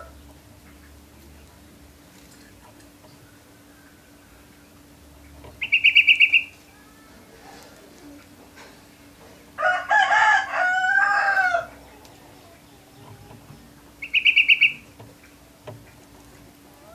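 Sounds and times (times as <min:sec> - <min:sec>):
lower two-part bird call: 0:05.6 - 0:06.6, 0:14.0 - 0:14.9
canary high trill: 0:05.6 - 0:07.1, 0:14.0 - 0:14.9.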